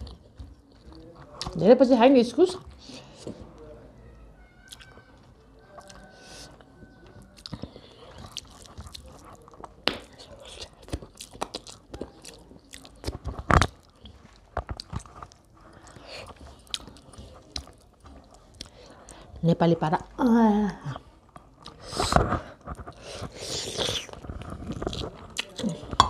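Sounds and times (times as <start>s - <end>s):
close chewing with wet clicks: 0.0s - 1.6s, 4.6s - 19.3s, 21.3s - 21.8s, 22.7s - 26.0s.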